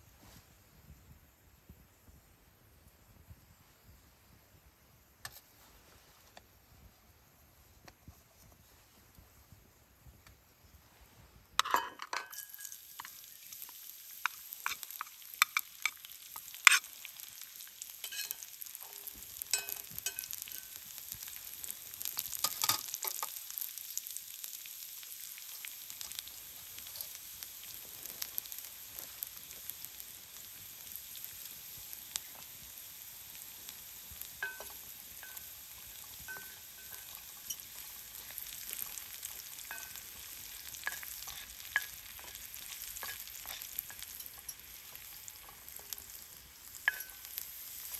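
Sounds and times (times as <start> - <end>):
food sizzling in a pan: 2.8 - 47.9
utensil clinking against pan: 11.6 - 13.2, 18.0 - 18.5, 19.5 - 20.8, 34.4 - 35.5, 36.2 - 37.8.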